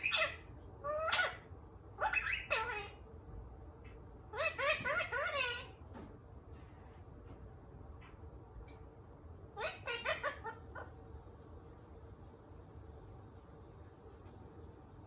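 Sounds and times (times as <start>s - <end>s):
parrot chattering: 0.0s - 3.0s, 4.3s - 5.8s, 9.6s - 11.0s.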